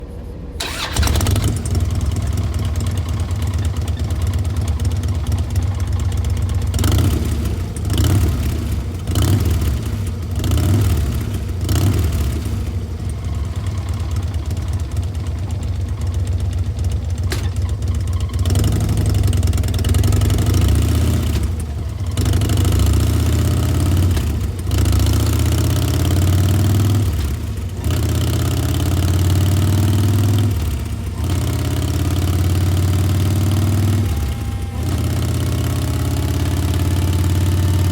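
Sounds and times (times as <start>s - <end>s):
motorcycle engine idling: 0.6s - 37.9s
motorcycle engine revving: 0.6s - 37.9s.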